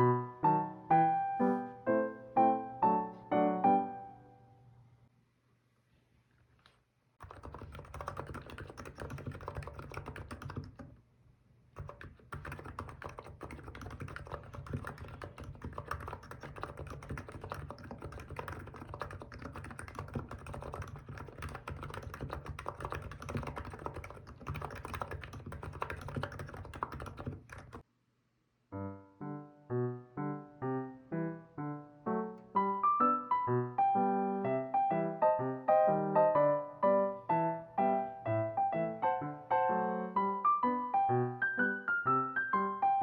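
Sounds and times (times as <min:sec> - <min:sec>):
fast keyboard typing: 0:07.2 - 0:11.0, 0:11.7 - 0:27.8.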